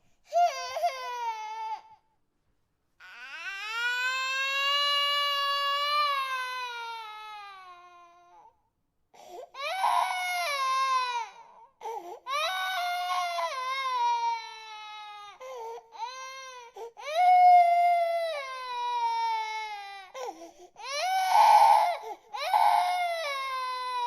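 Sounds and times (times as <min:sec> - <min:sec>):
infant crying: 0:00.3 - 0:02.0, 0:03.0 - 0:08.5, 0:09.2 - 0:24.0.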